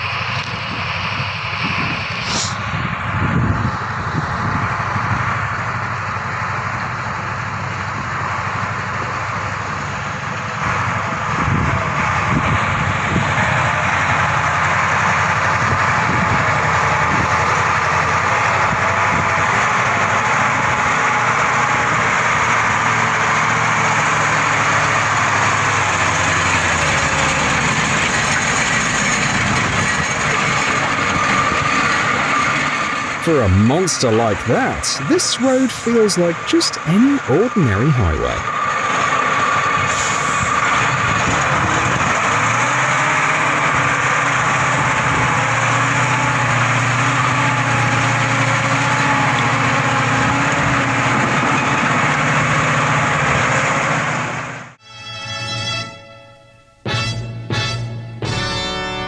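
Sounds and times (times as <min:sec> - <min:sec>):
heavy machine engine running: 0:00.0 - 0:54.8.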